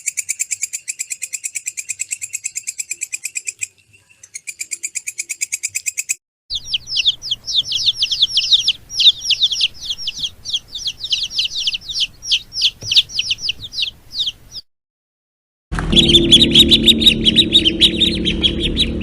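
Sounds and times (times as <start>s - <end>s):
birds peeping: 0.0s - 14.7s, 15.8s - 19.0s
fast chirping trill: 4.3s - 14.7s, 15.8s - 19.0s.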